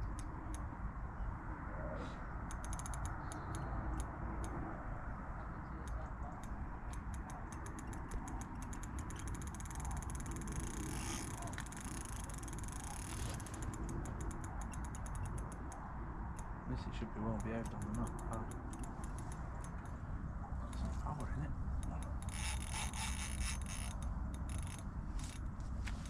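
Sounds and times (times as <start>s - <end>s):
wind or handling rumble: 0.0s - 26.0s
fishing reel ratcheting: 2.5s - 4.5s, 6.9s - 15.8s, 17.2s - 20.0s, 20.8s - 25.5s.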